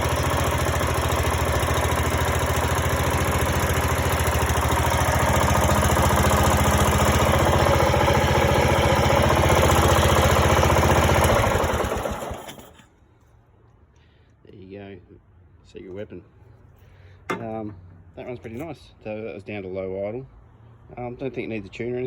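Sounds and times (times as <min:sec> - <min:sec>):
mower engine idling: 0:00.0 - 0:13.0, 0:17.2 - 0:18.6.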